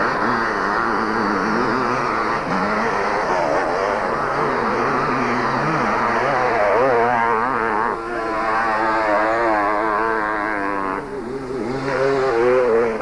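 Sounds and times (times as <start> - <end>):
motocross bikes revving: 0.0 - 13.0.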